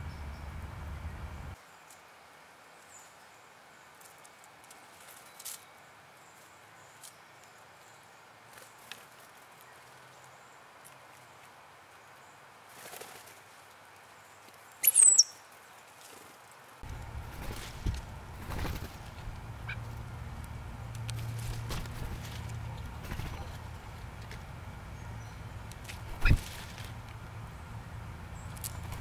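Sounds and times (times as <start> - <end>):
wings flapping: 12.7 - 13.6, 16.0 - 20.0, 21.0 - 24.0, 25.8 - 27.0.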